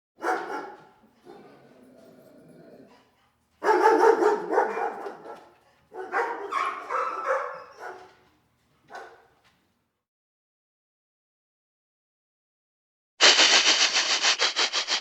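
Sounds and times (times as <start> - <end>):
dog barking: 0.2 - 1.8, 3.6 - 8.2, 8.9 - 9.4.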